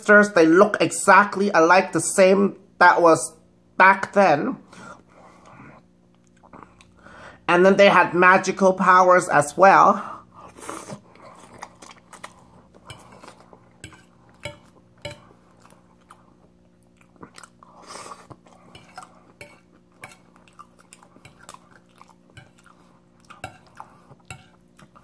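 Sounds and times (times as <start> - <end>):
close-up chewing food: 5.0 - 7.1, 10.4 - 25.0.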